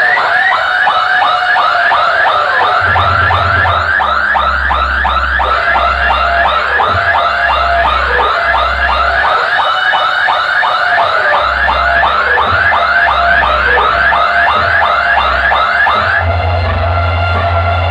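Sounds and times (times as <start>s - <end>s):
electronic siren-like chirp: 0.0s - 17.6s
deep bass notes: 2.8s - 9.3s, 11.4s - 17.9s.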